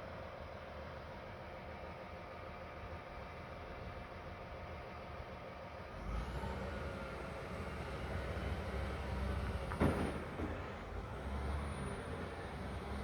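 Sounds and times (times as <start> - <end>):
bulldozer diesel engine rumbling: 6.0 - 13.0.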